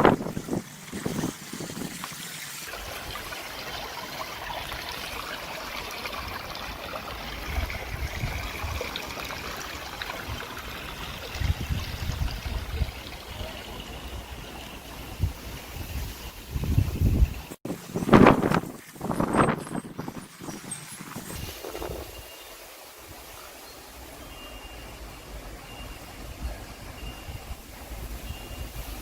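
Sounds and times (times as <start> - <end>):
wind buffeting microphone: 0.0 - 3.3, 6.2 - 9.0, 10.1 - 22.3
water trickling: 0.0 - 29.0.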